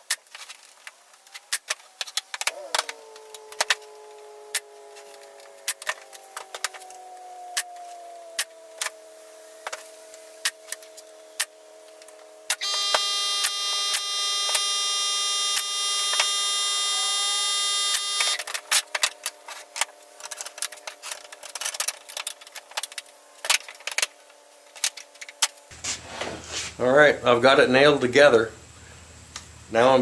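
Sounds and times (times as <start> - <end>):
loud buzzing tone: 10.4 - 20.7.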